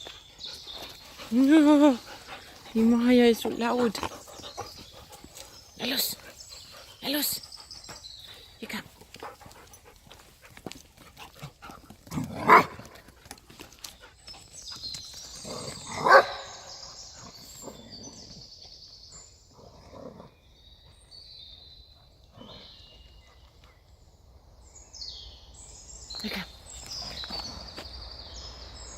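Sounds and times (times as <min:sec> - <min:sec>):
quiet dog sounds: 0:00.0 - 0:19.3
dog barking loudly: 0:12.4 - 0:12.8, 0:15.9 - 0:16.6.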